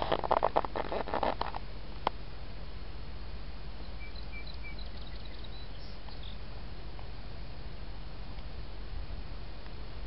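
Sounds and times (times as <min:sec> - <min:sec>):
outdoor background hiss: 0:00.0 - 0:10.0
small bird chirps: 0:03.9 - 0:06.4.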